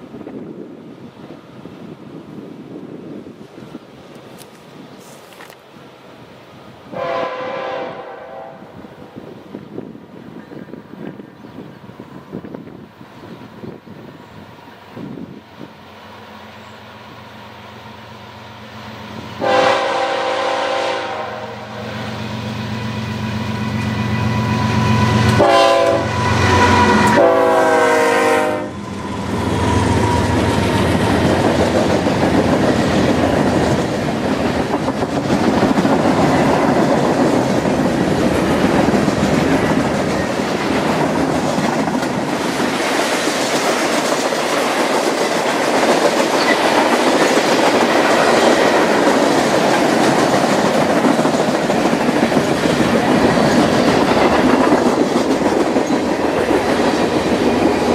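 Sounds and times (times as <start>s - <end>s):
diesel locomotive running: 0.0s - 57.9s
train horn: 6.9s - 9.0s, 19.4s - 30.8s.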